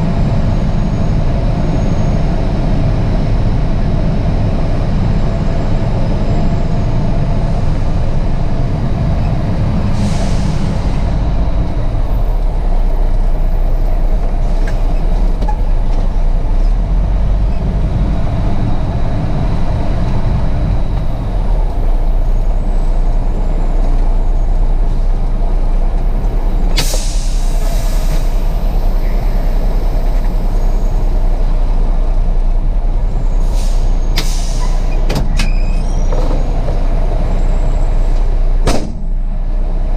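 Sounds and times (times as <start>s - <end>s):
diesel truck engine running: 0.0s - 39.9s
air brake hisses: 9.9s - 11.1s, 26.8s - 28.6s, 33.4s - 35.1s.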